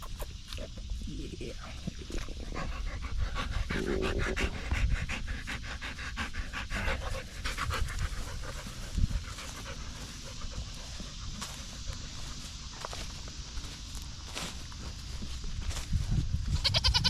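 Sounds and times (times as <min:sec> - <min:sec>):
dog panting rapidly: 0:02.4 - 0:12.4.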